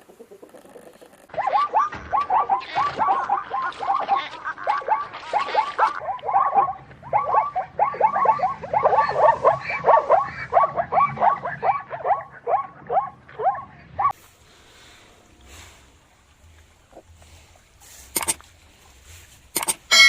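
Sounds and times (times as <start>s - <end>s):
animals calling: 0.0s - 14.2s.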